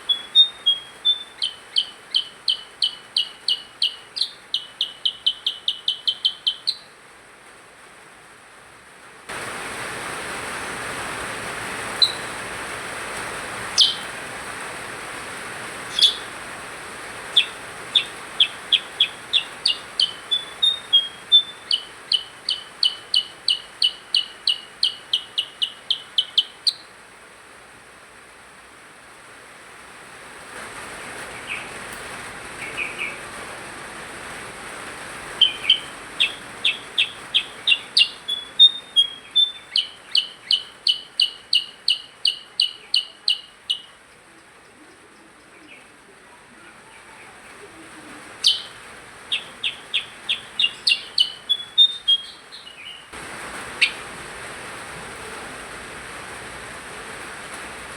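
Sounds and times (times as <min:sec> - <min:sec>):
songbird singing high notes: 0:00.0 - 0:07.0, 0:11.9 - 0:12.4, 0:13.7 - 0:14.2, 0:15.8 - 0:16.5, 0:17.1 - 0:26.9, 0:35.3 - 0:44.0, 0:48.4 - 0:53.2, 0:53.8 - 0:54.0.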